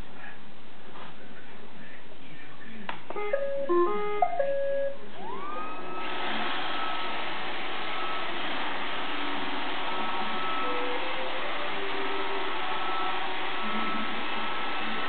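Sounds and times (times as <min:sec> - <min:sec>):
robot vacuum start-up tune: 0:03.1 - 0:15.0
robot vacuum motor whine: 0:05.2 - 0:15.0.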